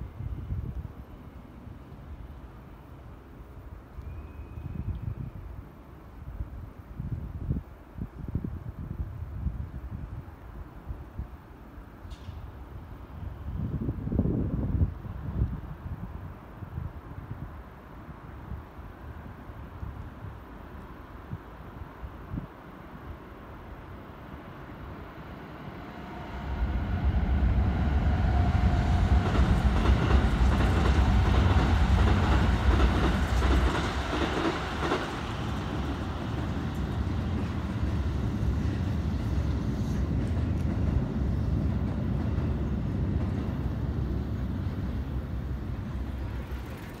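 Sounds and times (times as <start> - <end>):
electric train rumbling past: 8.2 - 47.0
wheels clacking over rail joints: 29.0 - 44.0, 45.4 - 47.0.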